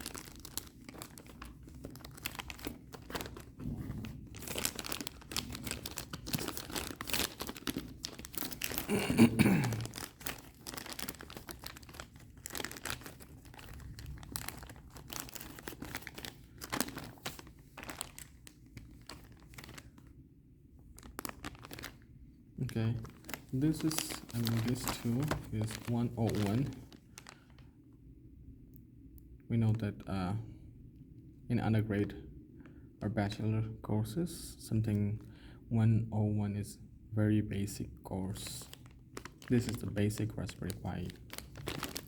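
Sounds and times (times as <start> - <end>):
plastic and cardboard packaging rustling: 0.0 - 20.1, 21.0 - 22.0, 22.6 - 27.6, 38.3 - 42.0.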